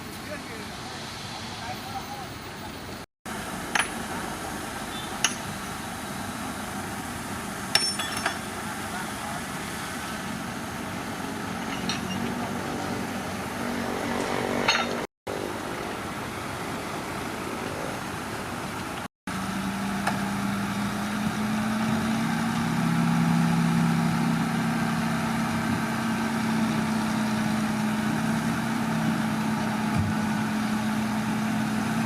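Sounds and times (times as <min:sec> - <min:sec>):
heavy machinery diesel engine: 0:00.0 - 0:32.0
sharp metallic clanks: 0:07.7 - 0:08.5, 0:11.6 - 0:12.5.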